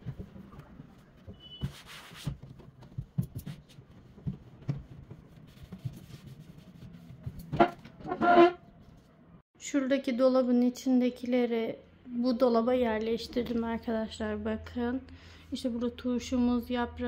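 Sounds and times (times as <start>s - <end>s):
rubbing sound: 0.2s - 9.1s.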